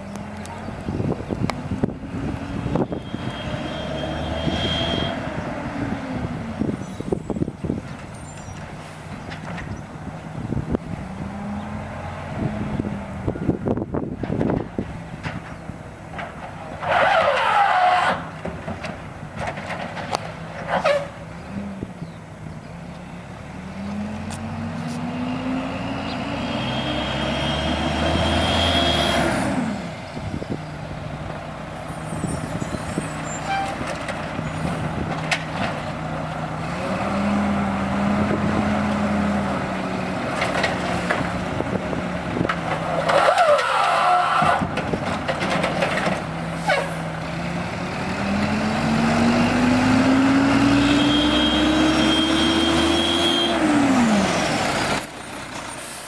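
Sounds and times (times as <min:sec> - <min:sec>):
diesel engine revving: 0:00.0 - 0:56.0
clanks and knocks: 0:18.4 - 0:21.0, 0:44.6 - 0:46.3.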